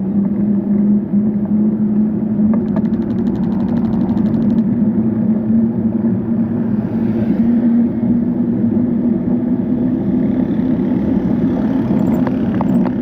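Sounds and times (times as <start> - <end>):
road traffic noise: 0.0 - 13.0
vehicle engine droning: 0.3 - 13.0
bicycle freewheel ticking: 2.7 - 4.6.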